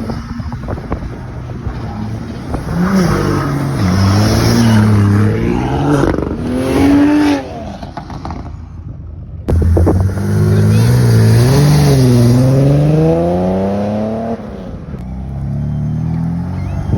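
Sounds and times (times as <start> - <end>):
car engine revving: 9.5 - 16.8.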